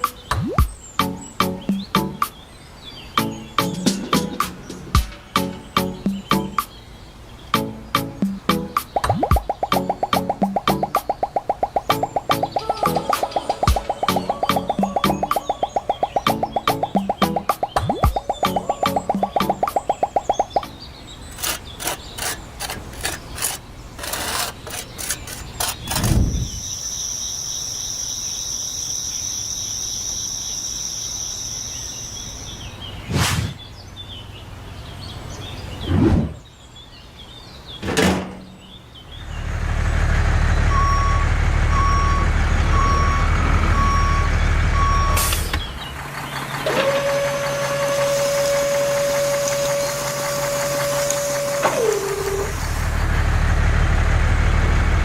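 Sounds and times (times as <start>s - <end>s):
truck engine rumbling: 18.4s - 26.8s, 38.0s - 55.0s
short sudden sweeps: 33.0s - 33.7s
reversing alarm beeping: 40.7s - 45.6s.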